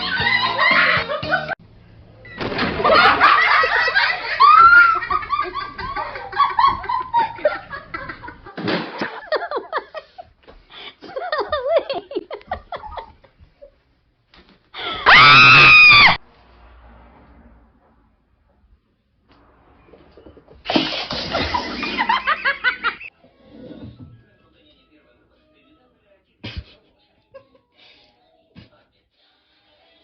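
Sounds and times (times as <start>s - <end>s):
people laughing and giggling: 0.0s - 1.6s, 2.8s - 13.8s, 20.1s - 23.1s, 26.4s - 28.0s.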